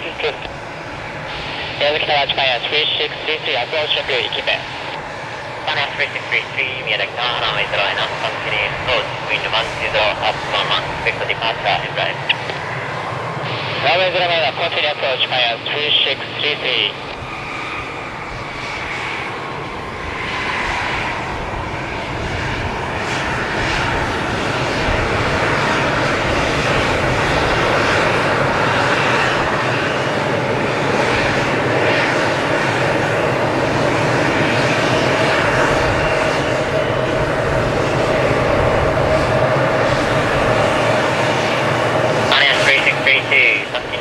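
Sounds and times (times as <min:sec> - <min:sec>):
jet engines taxiing: 0:00.0 - 0:44.0.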